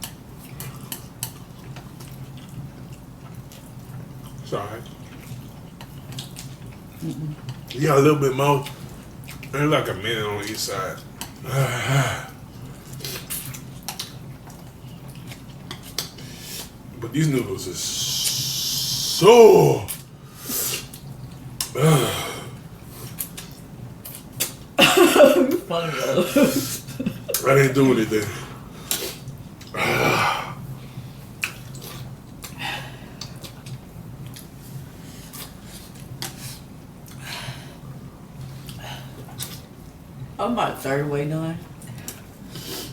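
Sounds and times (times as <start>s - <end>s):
chewing and wet mouth sounds: 0.0s - 11.4s, 12.3s - 16.9s, 18.0s - 19.2s, 19.8s - 21.8s, 22.6s - 24.8s, 26.7s - 29.8s, 30.8s - 40.2s, 41.6s - 42.9s
steady low hum: 0.0s - 42.9s
slurp: 17.9s - 19.2s.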